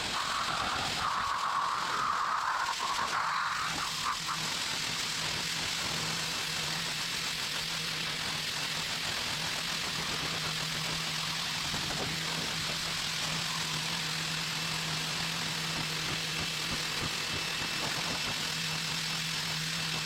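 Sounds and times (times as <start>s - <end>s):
pressure washer motor hum: 0.0s - 6.8s.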